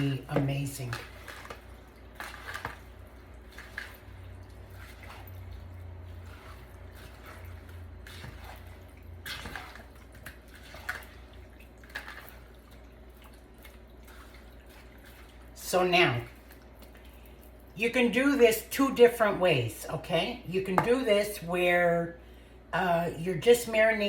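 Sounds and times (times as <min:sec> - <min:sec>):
low steady hum: 0:00.0 - 0:24.0
wet clicks and drips: 0:00.9 - 0:15.6, 0:16.3 - 0:17.8.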